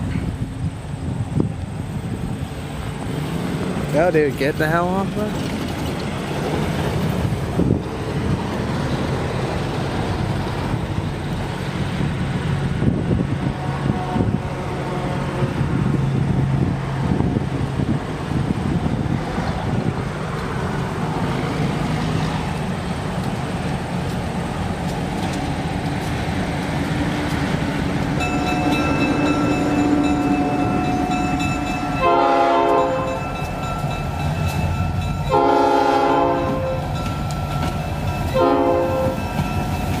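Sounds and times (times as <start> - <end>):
diesel locomotive rumbling: 0.0 - 40.0
train air horn blasts: 13.6 - 15.6, 28.2 - 33.3, 35.3 - 37.0, 38.3 - 39.3
steady bell ringing: 28.2 - 35.4, 36.9 - 38.4.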